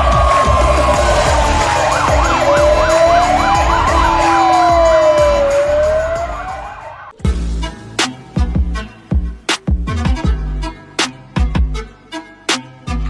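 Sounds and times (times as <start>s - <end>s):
fast siren yelp: 0.0s - 7.2s
fire engine siren wail: 0.0s - 7.2s
thudding music beat: 0.0s - 13.0s.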